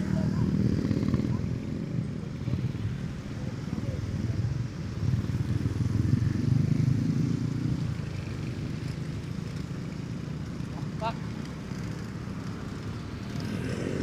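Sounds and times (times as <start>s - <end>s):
motorcycle engine accelerating: 13.2s - 14.0s.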